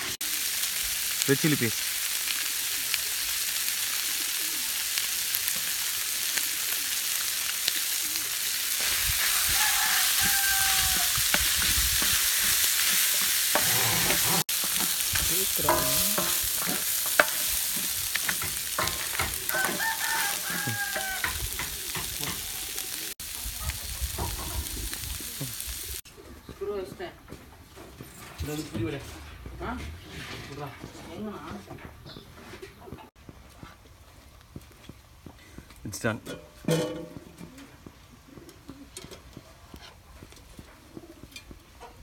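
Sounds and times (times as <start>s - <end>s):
seafood sizzling in a pan: 0.0s - 26.0s
spatula stirring and scraping: 8.5s - 22.5s
rooster crowing: 9.2s - 11.3s, 19.3s - 21.6s.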